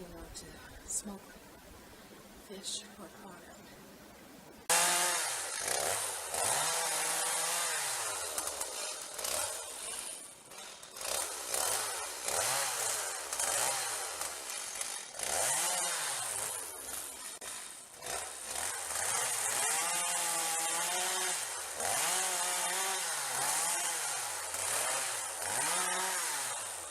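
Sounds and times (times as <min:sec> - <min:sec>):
chainsaw cutting wood: 0:04.7 - 0:26.9.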